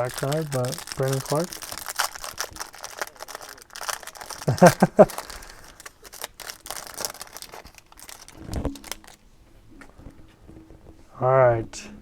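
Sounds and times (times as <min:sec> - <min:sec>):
cards being handled: 0:00.0 - 0:09.2
plastic wrapper crinkling: 0:00.0 - 0:09.2.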